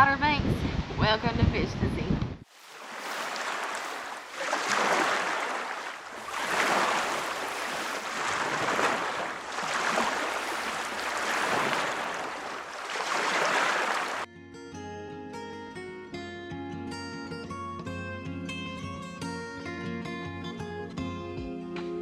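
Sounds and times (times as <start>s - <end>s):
gusting wind: 0.0s - 14.3s
waves washing in: 2.4s - 14.3s.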